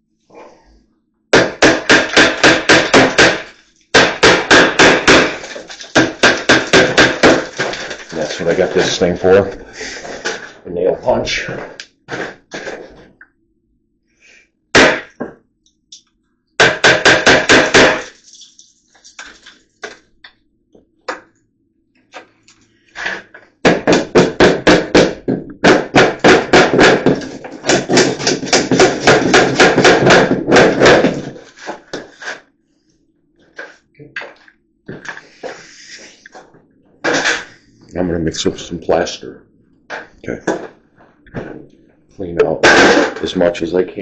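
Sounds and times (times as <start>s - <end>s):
hammer striking nail punch: 1.3s - 5.4s, 16.6s - 18.1s.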